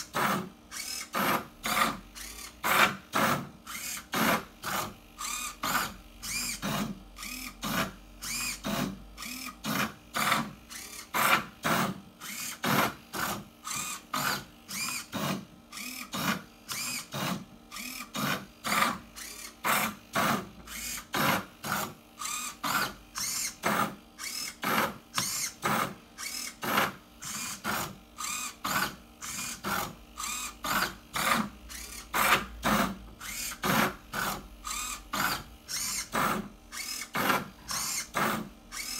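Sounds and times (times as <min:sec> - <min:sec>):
robot motors whirring: 0:00.1 - 0:38.9.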